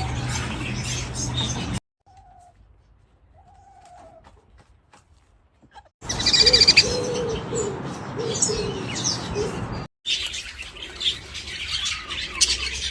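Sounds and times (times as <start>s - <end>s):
birds chirping and trilling: 0.0s - 2.6s, 6.0s - 12.9s.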